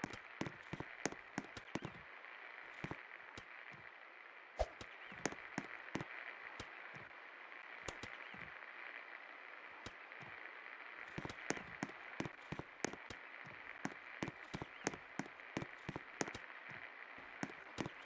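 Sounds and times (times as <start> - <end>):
irregular clicks and taps: 11.2 - 13.2, 13.8 - 16.4.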